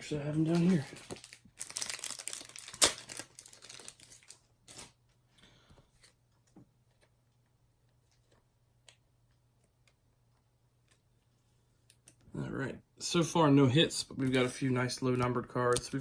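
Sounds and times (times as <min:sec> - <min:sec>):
plastic packaging crinkling: 0:00.3 - 0:05.0.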